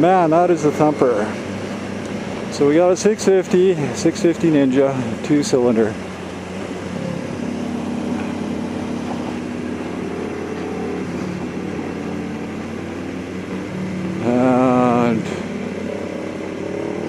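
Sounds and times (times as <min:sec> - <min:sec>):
motorcycle engine running: 0:00.0 - 0:17.0
rushing noise: 0:00.0 - 0:17.0.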